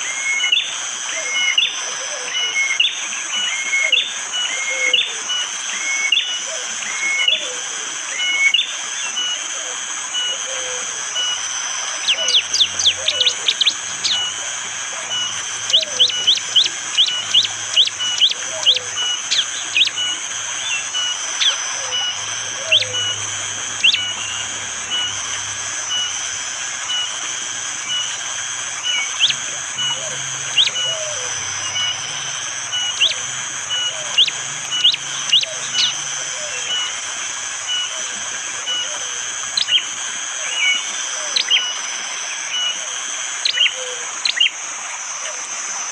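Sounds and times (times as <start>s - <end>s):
high forest background: 0.0s - 45.9s
bird giving sharp calls: 12.0s - 41.7s.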